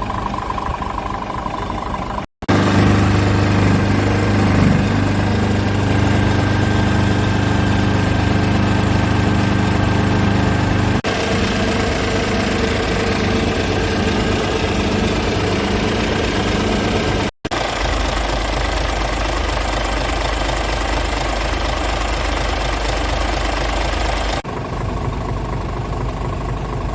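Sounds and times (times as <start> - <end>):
diesel truck engine idling: 0.0 - 26.9.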